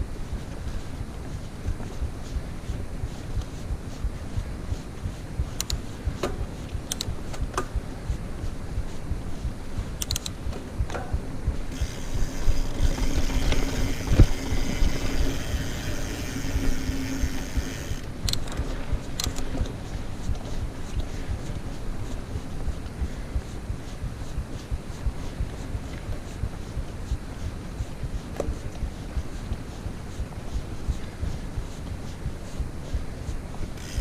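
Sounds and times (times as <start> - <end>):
bike clicks and rattles: 5.5 - 7.8, 10.0 - 21.6, 33.6 - 34.0
bike tyres rumbling on dirt: 11.5 - 18.0.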